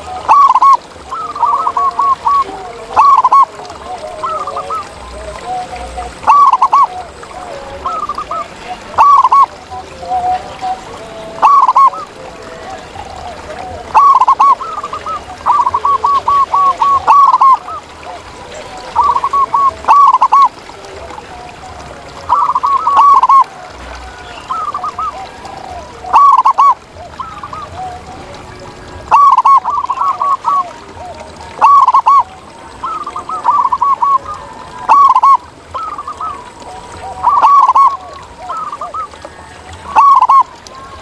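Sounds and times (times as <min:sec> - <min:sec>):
dove cooing: 0:00.0 - 0:41.0.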